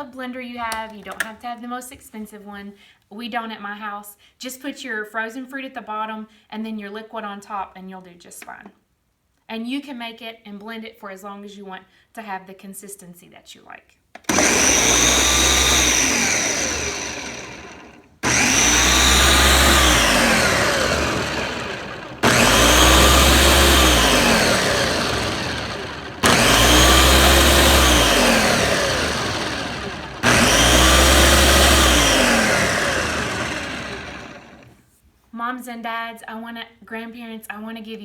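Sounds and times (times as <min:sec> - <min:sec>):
blender crushing frozen fruit: 0:14.2 - 0:34.8.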